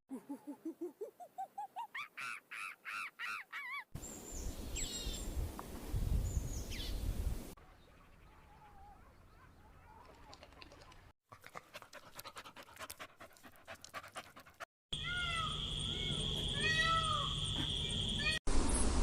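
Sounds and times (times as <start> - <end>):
animal breathy clicks: 10.0 - 14.7.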